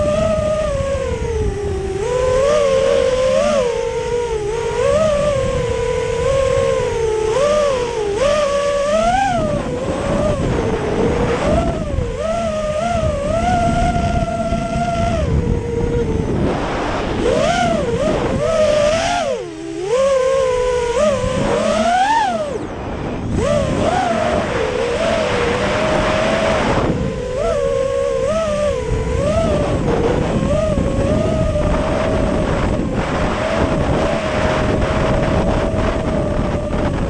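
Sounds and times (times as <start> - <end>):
drone motors whining: 0.0 - 37.0
wind rumble: 0.0 - 37.0.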